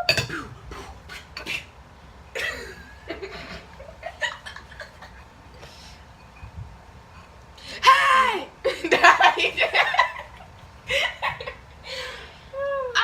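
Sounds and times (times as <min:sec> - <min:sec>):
soft chuckling and laughter: 0:02.4 - 0:05.3, 0:08.6 - 0:12.2.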